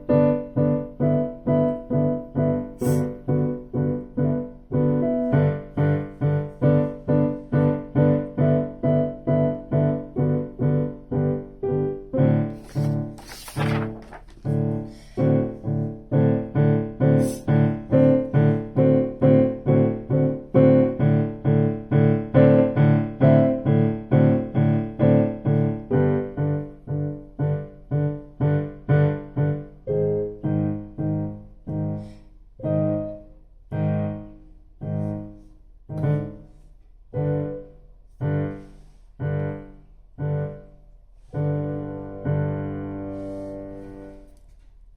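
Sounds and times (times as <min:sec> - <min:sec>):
piano chords: 0:00.0 - 0:40.7, 0:41.4 - 0:44.3.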